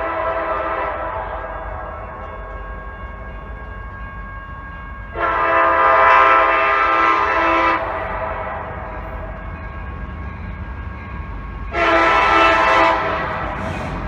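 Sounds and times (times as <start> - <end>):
locomotive air horn: 0.0 - 1.5, 5.1 - 8.9, 11.6 - 14.0
low train rumble: 0.0 - 14.0.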